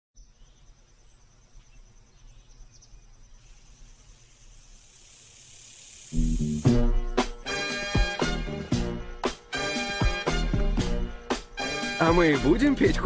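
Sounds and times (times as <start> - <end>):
faint insects chirring: 0.2 - 7.9, 10.8 - 12.8
hiss: 3.4 - 7.4
loud music: 6.2 - 13.0.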